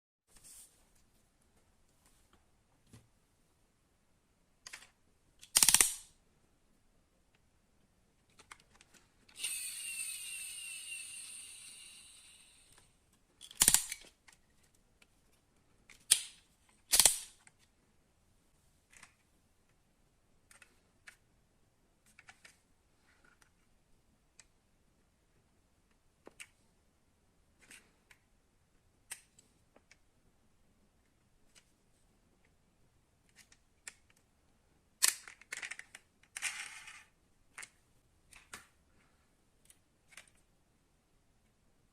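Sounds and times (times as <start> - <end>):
high whir: 9.4 - 12.8.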